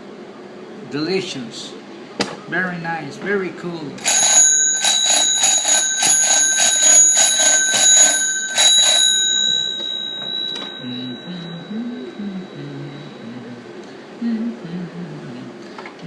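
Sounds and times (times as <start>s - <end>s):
small metal bell ringing: 4.0s - 13.4s.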